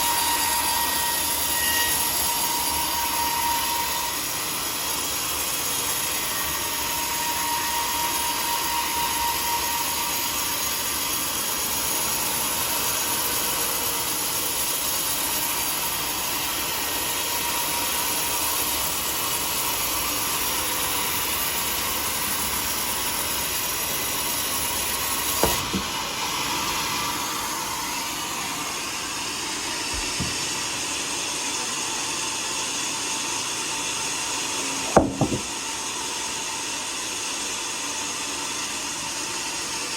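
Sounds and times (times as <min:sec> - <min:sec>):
sawmill saw whirring: 0:00.0 - 0:39.9
short knock: 0:25.4 - 0:25.9, 0:29.9 - 0:30.5, 0:34.9 - 0:35.5.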